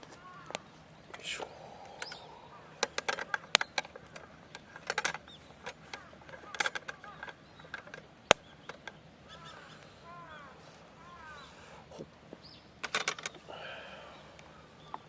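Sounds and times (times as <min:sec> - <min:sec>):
small birds chirping: 0:00.0 - 0:15.0
sharp clicks and knocks: 0:02.8 - 0:09.0, 0:12.8 - 0:13.4.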